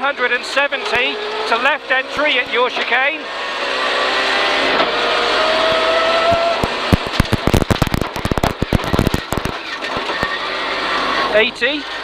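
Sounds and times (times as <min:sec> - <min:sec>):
rally car engine pulling hard: 0:00.0 - 0:12.0
exhaust cracks and bangs: 0:05.7 - 0:10.4.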